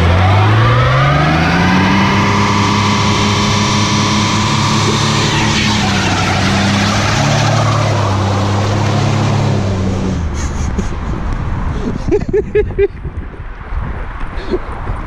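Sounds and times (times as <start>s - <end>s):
pickup engine at high revs: 0.0s - 10.5s
spinning tyres hissing: 1.7s - 10.4s.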